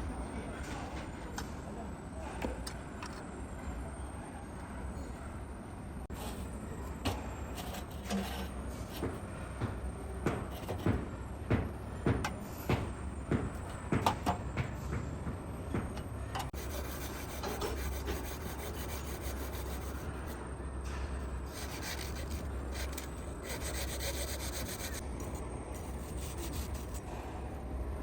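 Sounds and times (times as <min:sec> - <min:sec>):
low machine hum: 0:00.0 - 0:28.0
sharp knocks and clatter: 0:09.0 - 0:16.6.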